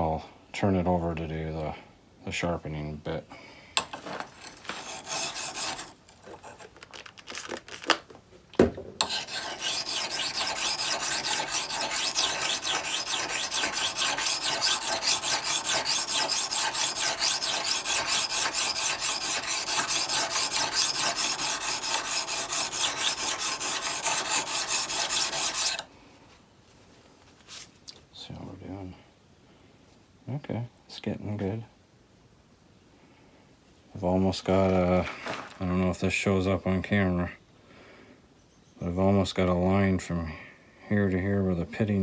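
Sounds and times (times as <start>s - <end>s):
chisel scraping on whetstone: 3.8s - 6.8s, 9.0s - 25.9s.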